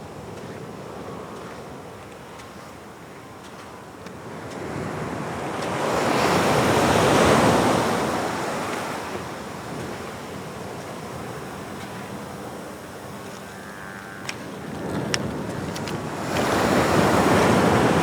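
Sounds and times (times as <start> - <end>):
surf crashing on rocks: 4.6 - 12.1, 14.6 - 18.0.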